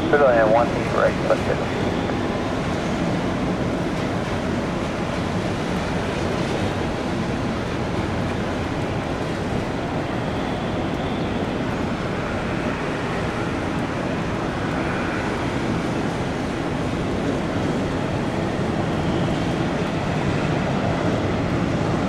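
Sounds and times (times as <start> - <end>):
faint high whine: 0.0 - 2.4
jet engines rushing: 0.0 - 22.0.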